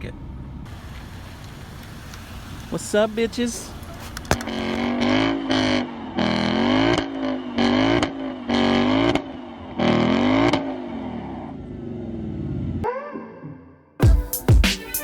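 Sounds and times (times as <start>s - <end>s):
car engine revving: 3.6s - 12.8s.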